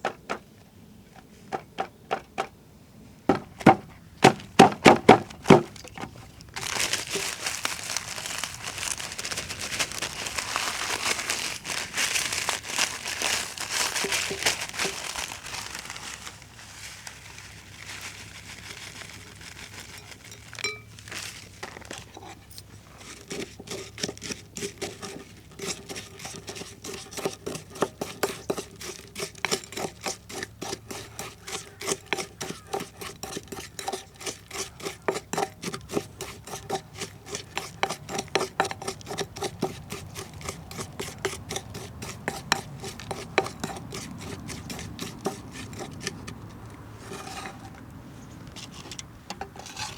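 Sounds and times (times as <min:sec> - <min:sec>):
bowl ringing faintly: 0:20.3 - 0:21.0.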